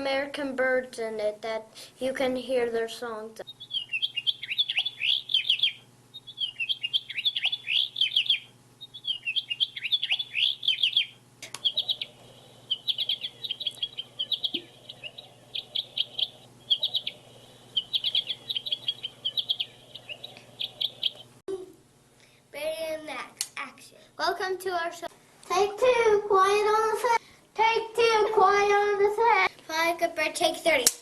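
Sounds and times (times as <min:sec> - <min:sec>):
recorded birdsong from small speaker: 0:02.2 - 0:21.4.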